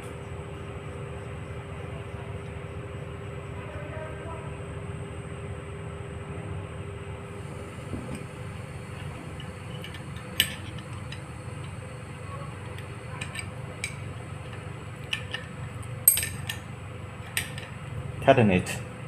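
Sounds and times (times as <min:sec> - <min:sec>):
low steady hum: 0:00.0 - 0:19.0
metallic clinks of tools: 0:09.0 - 0:11.8, 0:16.1 - 0:16.6.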